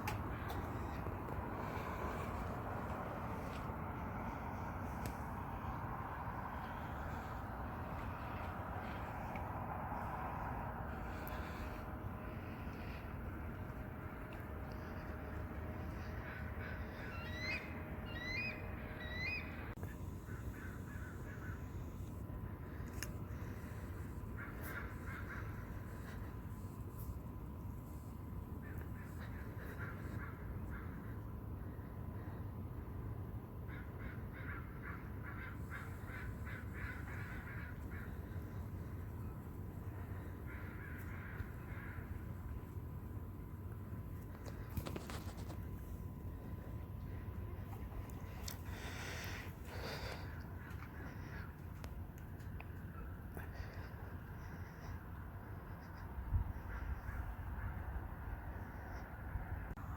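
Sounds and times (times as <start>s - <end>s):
steady low rumble: 0.0s - 59.9s
bird calling: 13.6s - 26.7s, 33.7s - 42.4s, 44.3s - 55.0s.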